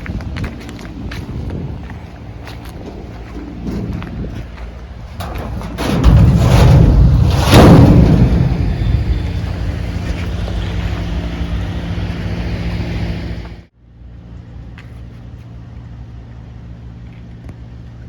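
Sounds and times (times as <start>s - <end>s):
machine humming: 2.0s - 13.7s.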